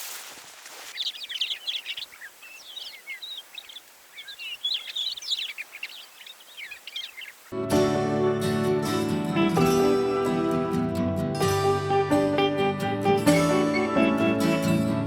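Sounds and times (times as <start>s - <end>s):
faint outdoor hiss: 0.0s - 7.5s
songbirds chirping: 0.0s - 7.6s.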